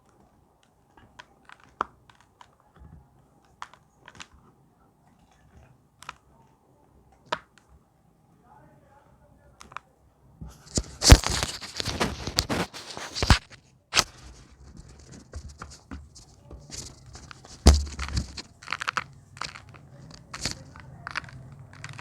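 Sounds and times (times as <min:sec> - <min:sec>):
chalk crushed and crumbling: 0:10.7 - 0:22.0
chalk snapping: 0:15.1 - 0:22.0.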